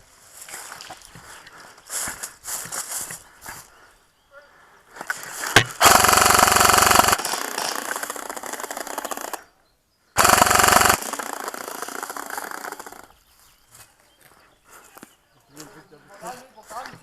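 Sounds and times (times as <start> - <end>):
electric gun firing bursts: 5.6 - 9.4, 10.2 - 13.1.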